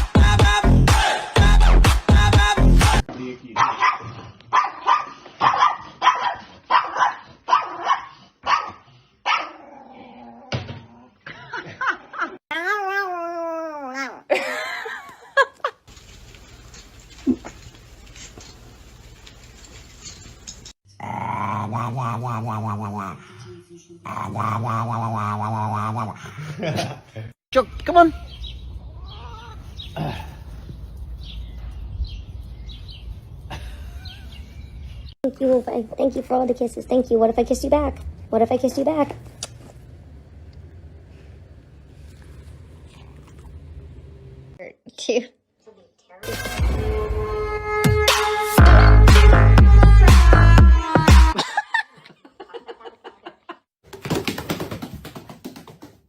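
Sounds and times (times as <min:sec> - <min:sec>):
dog barking: 0:03.6 - 0:09.6.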